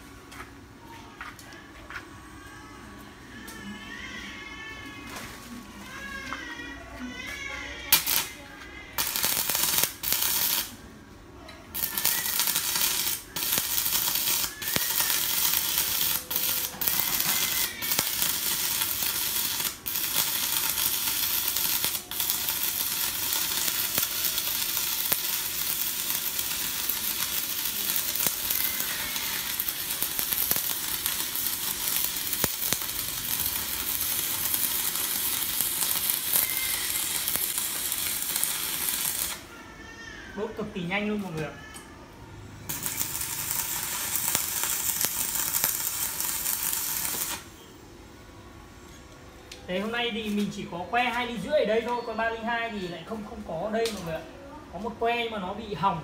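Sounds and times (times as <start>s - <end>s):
welding arc crackling and sizzling: 7.8s - 10.8s, 11.7s - 39.5s, 42.7s - 47.6s.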